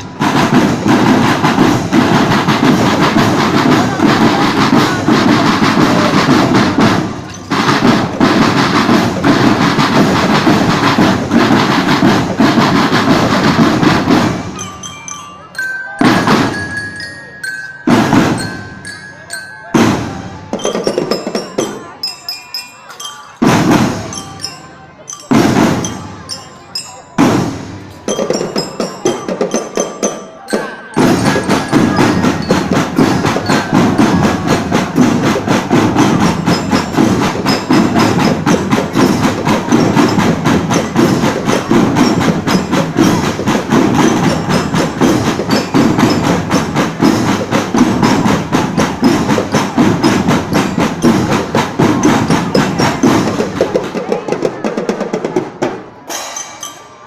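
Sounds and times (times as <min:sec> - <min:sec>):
drum and cymbal hits: 0:00.0 - 0:57.0
drum line playing: 0:00.0 - 0:57.0
bell-lyra notes: 0:14.2 - 0:53.4, 0:56.1 - 0:57.0.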